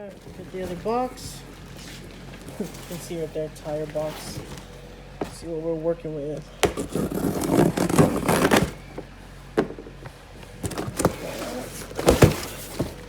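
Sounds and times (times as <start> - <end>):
box scraping and rustling: 0.0 - 5.6, 6.5 - 13.0
knocks and thumps on box: 6.6 - 13.0.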